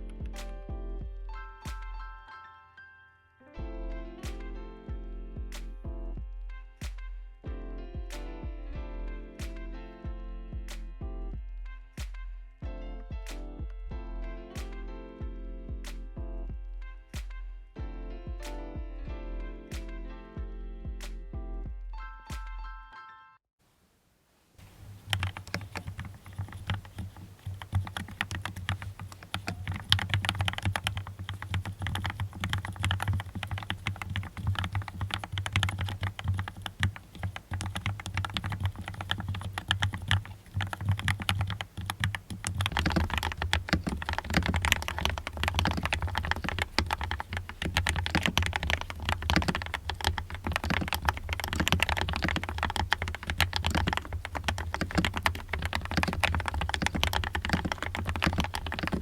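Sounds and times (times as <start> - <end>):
typing on mechanical keyboard: 24.6 - 59.0.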